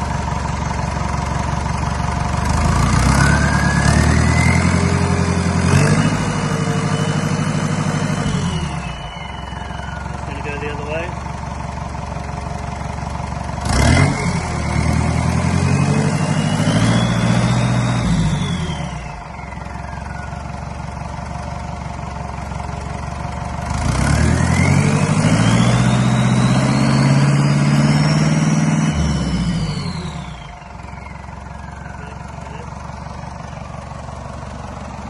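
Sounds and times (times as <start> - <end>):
high turbo whine: 0.0 - 11.3, 13.6 - 21.0, 23.7 - 35.0
marine diesel engine revving: 2.3 - 11.2, 13.6 - 19.5, 22.5 - 35.0.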